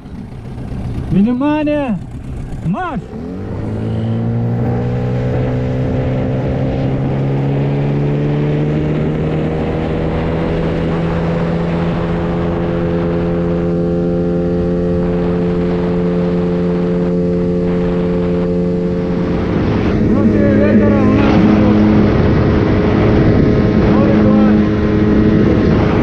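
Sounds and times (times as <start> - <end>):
outboard motors at full throttle: 0.0 - 26.0.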